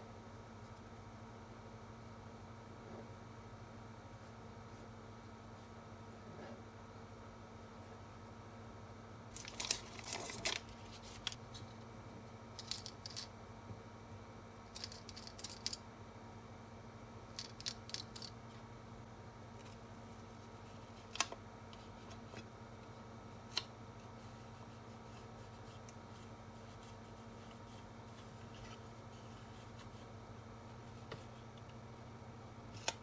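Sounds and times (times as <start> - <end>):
aluminum foil crinkling and snipping: 9.3 - 11.4, 12.6 - 13.3.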